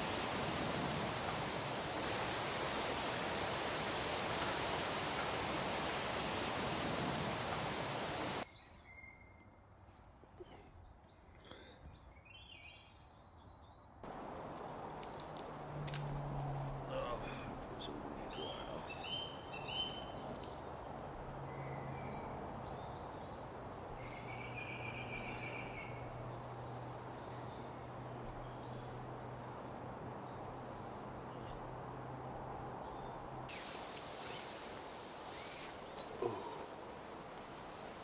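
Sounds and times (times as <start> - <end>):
background hiss: 0.0 - 8.4, 14.0 - 38.0
birds chirping: 0.0 - 38.0.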